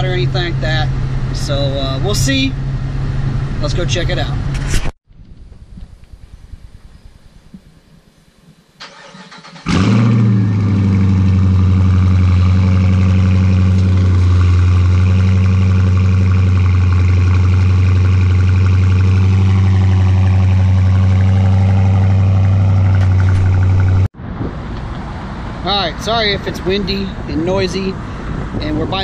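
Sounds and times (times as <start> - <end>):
car engine starting and idling: 8.8 - 24.1.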